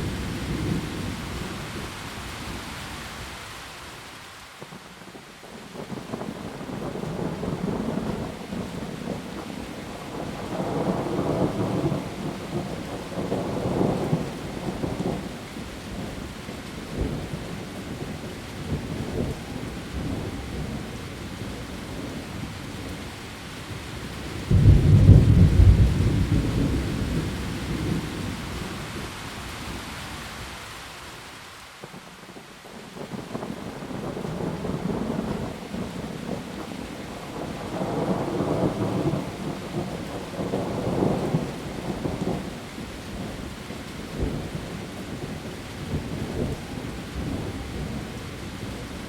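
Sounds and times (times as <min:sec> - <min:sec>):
heavy rain on leaves: 0:00.0 - 0:49.0
rolling thunder: 0:24.4 - 0:29.0, 0:33.0 - 0:43.5
loud thunderclap: 0:24.5 - 0:28.3.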